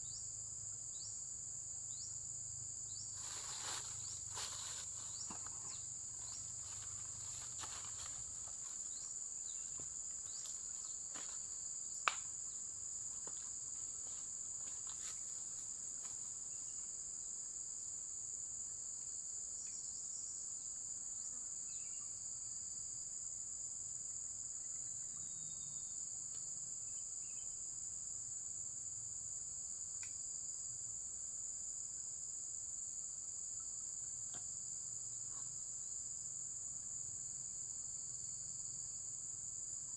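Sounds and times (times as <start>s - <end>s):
insects trilling: 0.0s - 39.9s
faint ticks: 30.0s - 30.2s.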